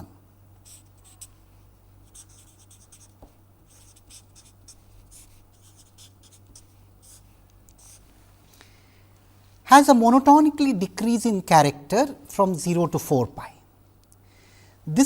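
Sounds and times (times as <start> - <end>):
steady low hum: 0.0 - 15.0
pen scratching on paper: 0.6 - 1.3, 2.1 - 8.0.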